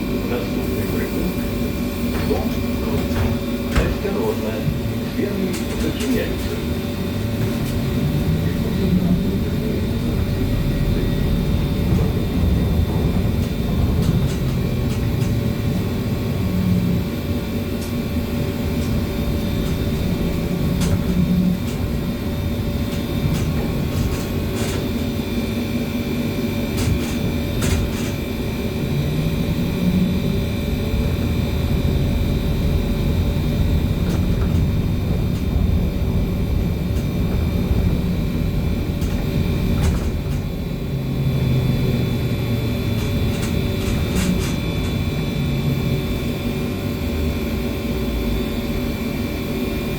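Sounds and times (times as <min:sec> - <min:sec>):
low rumble of ride: 0:00.0 - 0:49.9
electric motor hum: 0:06.5 - 0:49.1
sharp clicks and rattles: 0:10.9 - 0:16.5, 0:17.1 - 0:25.4, 0:26.5 - 0:28.6, 0:33.3 - 0:40.8, 0:42.0 - 0:45.4.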